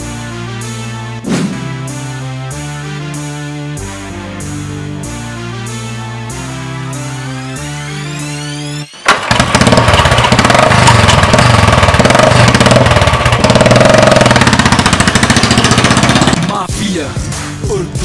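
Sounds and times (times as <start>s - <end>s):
motorcycle engine starting and running: 8.9s - 16.7s.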